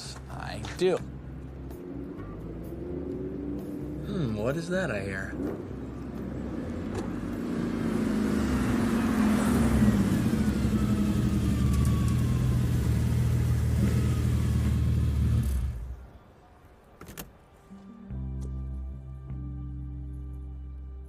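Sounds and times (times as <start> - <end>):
car engine driving up: 1.2 - 4.4, 5.3 - 16.0.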